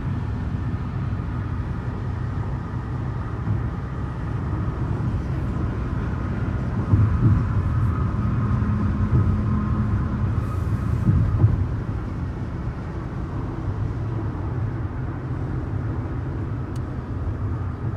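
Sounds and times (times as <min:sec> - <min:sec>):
car driving at highway speed: 0:00.0 - 0:17.9
car bumps: 0:06.8 - 0:08.1, 0:10.9 - 0:11.9.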